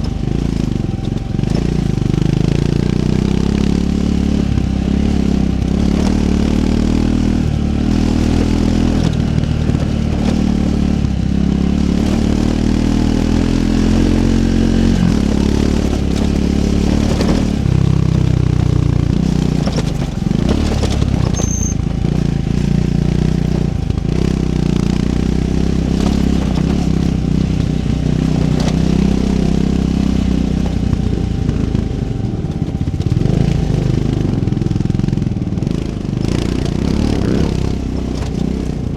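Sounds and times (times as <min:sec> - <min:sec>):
motorcycle engine revving: 0:00.0 - 0:38.9
knocks and clatters: 0:15.1 - 0:22.3.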